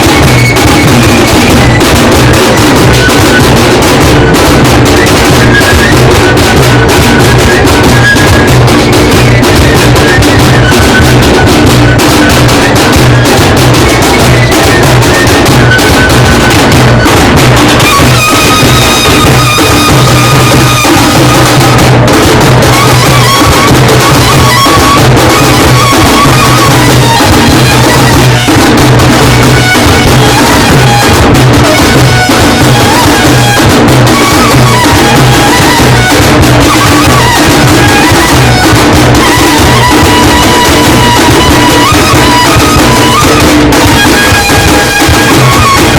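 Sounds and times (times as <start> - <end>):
fast drumming: 0.0 - 45.9
reed wind instrument melody: 0.0 - 45.9.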